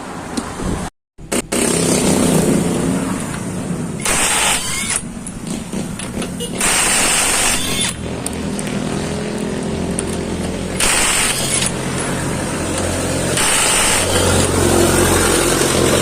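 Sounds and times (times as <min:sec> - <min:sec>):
impact wrench bursts: 0:04.0 - 0:08.1, 0:10.0 - 0:16.0.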